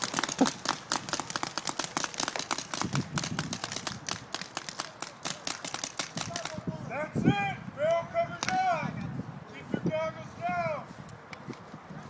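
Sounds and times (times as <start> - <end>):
paintball markers firing: 0.0 - 6.6.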